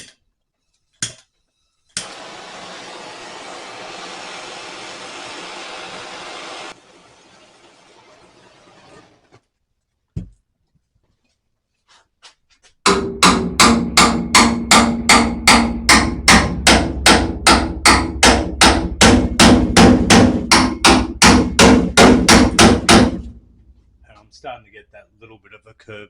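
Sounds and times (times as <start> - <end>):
hammer striking sheet steel: 12.8 - 23.4.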